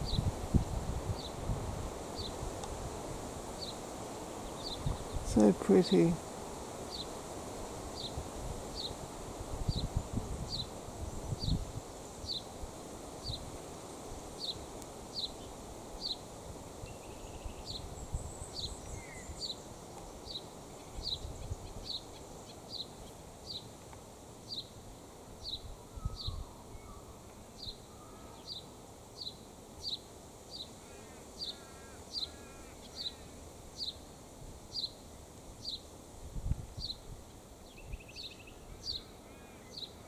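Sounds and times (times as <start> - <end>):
low wind rumble: 0.0 - 3.6, 8.0 - 13.6.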